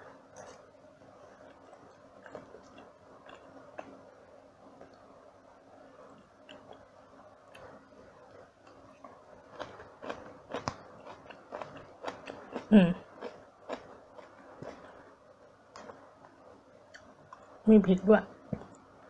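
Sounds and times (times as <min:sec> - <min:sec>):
chewing noodles: 0:01.4 - 0:04.0, 0:08.4 - 0:15.0.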